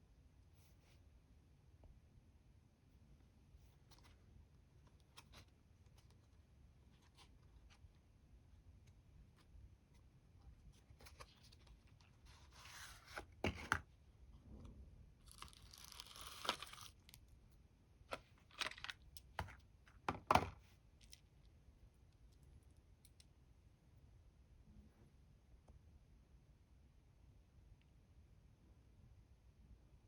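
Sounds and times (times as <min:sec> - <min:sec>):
paper or plastic wrap tearing: 0:15.3 - 0:17.0
small box clicking and knocking: 0:18.1 - 0:20.6.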